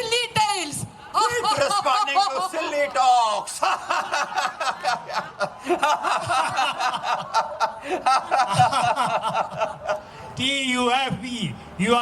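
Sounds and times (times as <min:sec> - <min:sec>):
group of people laughing: 0:01.4 - 0:10.1.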